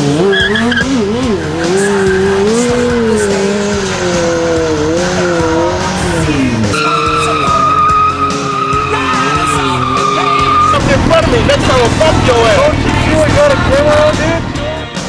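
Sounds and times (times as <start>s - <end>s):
motorcycle engine revving: 0.0s - 14.7s
high-pitched tyre squeal: 0.2s - 4.6s, 5.2s - 11.0s.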